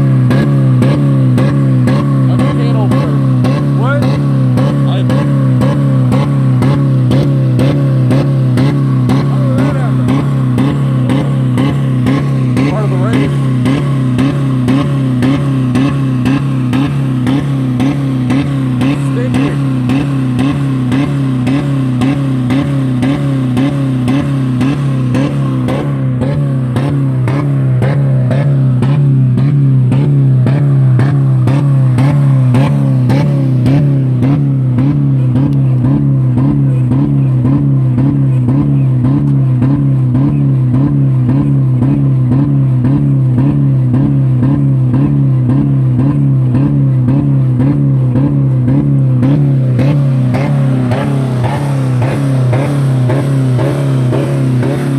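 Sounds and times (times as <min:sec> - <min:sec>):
car engine running flat out: 0:00.0 - 0:54.9
engine ticking: 0:00.0 - 0:54.9.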